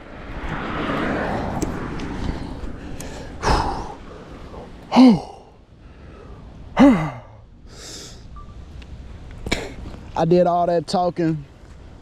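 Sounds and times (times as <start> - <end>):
man exhaling sharply: 3.0 - 4.1
man sighing: 3.0 - 5.6, 6.2 - 8.2.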